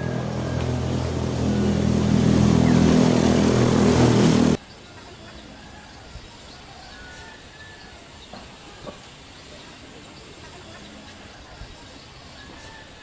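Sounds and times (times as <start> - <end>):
vehicle engine running: 0.0 - 4.6.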